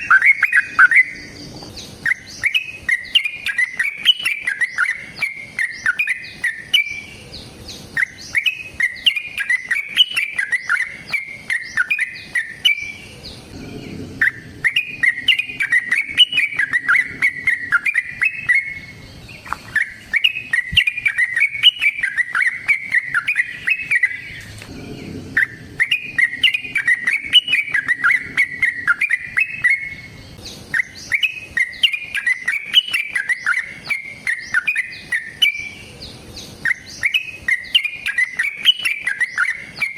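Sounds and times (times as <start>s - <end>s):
bulbul singing bubbly chattering notes: 13.4s - 19.0s, 19.7s - 30.1s.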